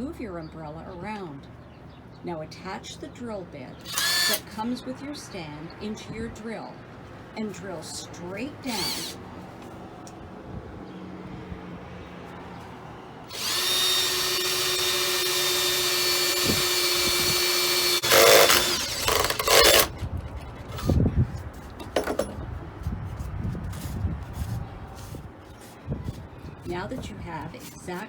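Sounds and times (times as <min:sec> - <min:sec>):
power drill boring into wood: 0:03.8 - 0:04.6, 0:08.7 - 0:09.2, 0:13.3 - 0:19.9
knocks: 0:21.8 - 0:22.4.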